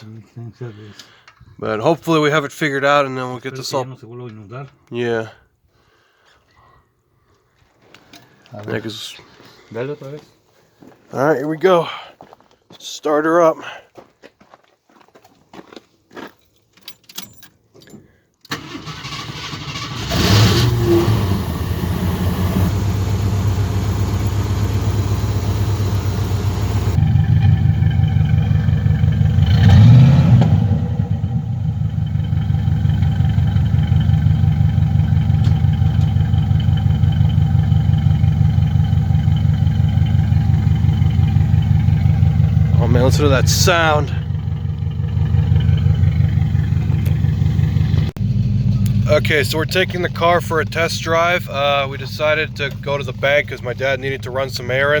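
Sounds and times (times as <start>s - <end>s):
car engine cranking and starting: 18.5s - 55.0s
car engine revving: 18.6s - 54.7s
car engine running: 18.6s - 55.0s.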